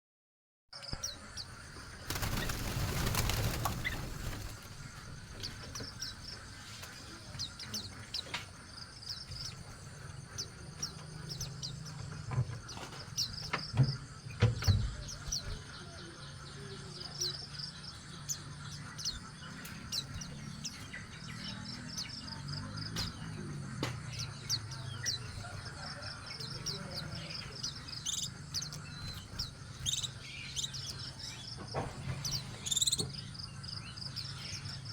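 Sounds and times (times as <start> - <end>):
small birds chirping: 0.8 - 34.9
wings flapping: 1.8 - 5.2.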